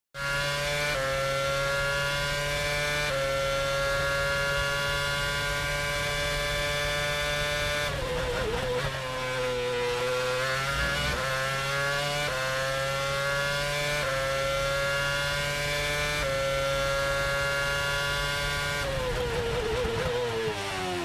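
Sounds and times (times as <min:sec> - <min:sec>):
race car engine high revs: 0:00.2 - 0:21.0.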